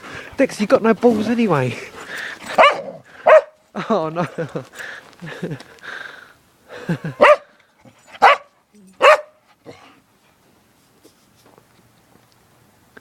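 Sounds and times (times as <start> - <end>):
dog barking: 2.6 - 3.6, 7.2 - 7.5, 8.2 - 9.4.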